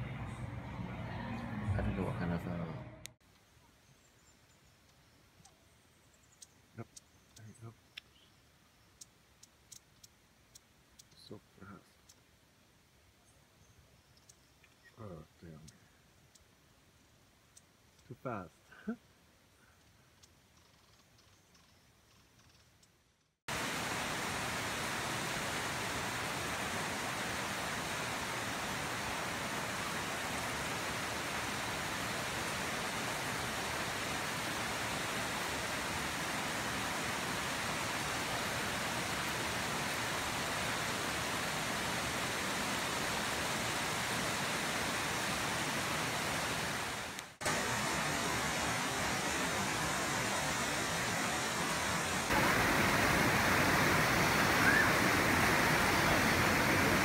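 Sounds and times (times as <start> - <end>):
heavy rain on leaves: 23.5 - 57.0.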